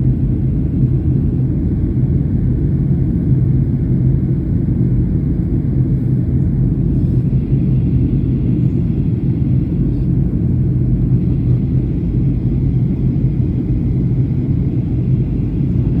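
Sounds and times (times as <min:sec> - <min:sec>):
jet engines droning: 0:00.0 - 0:16.0
low hum: 0:05.4 - 0:16.0.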